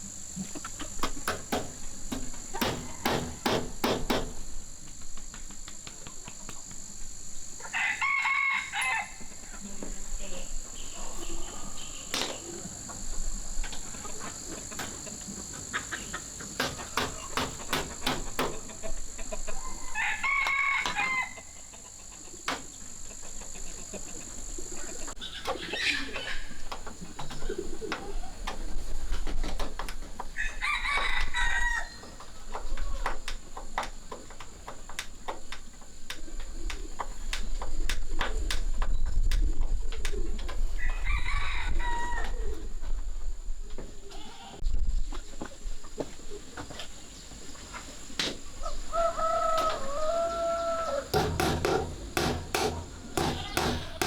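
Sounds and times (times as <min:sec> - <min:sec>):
sharp clicks and knocks: 0:00.6 - 0:04.6, 0:51.1 - 0:54.0
rooster crowing: 0:02.5 - 0:03.6, 0:07.6 - 0:09.5, 0:19.5 - 0:21.6, 0:30.4 - 0:32.2, 0:40.8 - 0:42.5, 0:48.6 - 0:54.0.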